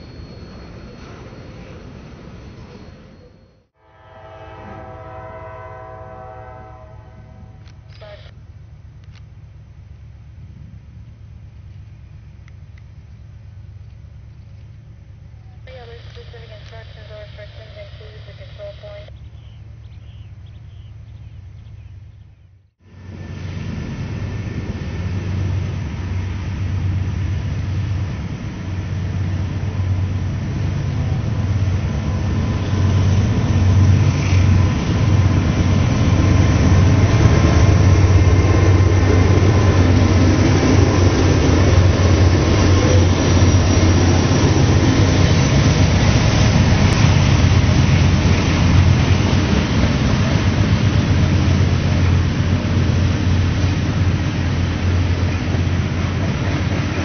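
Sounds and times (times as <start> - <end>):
hopper cars rolling on rails: 0.0 - 3.6, 22.9 - 57.0
diesel locomotive engines: 0.0 - 57.0.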